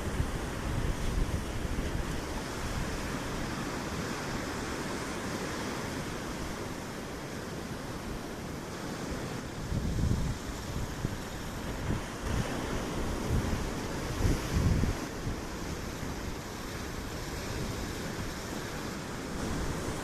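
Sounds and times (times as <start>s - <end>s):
wind buffeting microphone: 0.0s - 4.2s, 9.5s - 20.0s
sea surf rushing: 0.0s - 20.0s.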